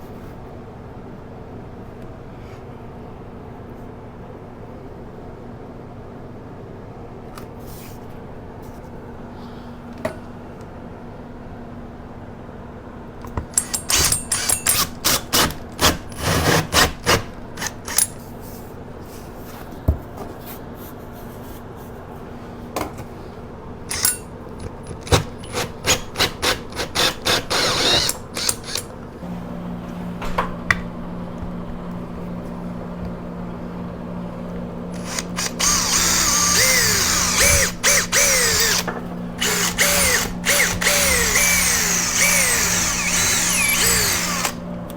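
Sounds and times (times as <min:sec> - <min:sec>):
power drill running: 0:13.6 - 0:18.1, 0:23.9 - 0:29.0, 0:34.9 - 0:44.7.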